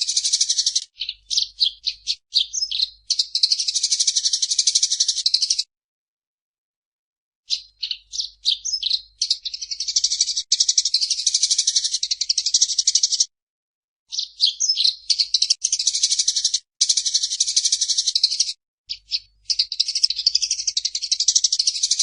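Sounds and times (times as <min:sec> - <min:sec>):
sparrow chattering: 0:00.0 - 0:05.7, 0:07.5 - 0:13.3, 0:14.1 - 0:22.0.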